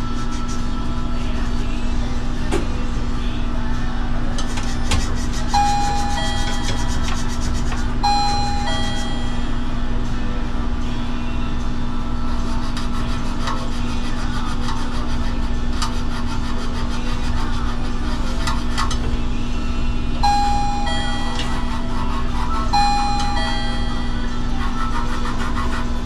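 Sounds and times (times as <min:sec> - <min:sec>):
low machine hum: 0:00.0 - 0:26.0
brief high tones: 0:05.6 - 0:07.2, 0:08.0 - 0:09.7, 0:20.2 - 0:22.1, 0:22.8 - 0:24.5.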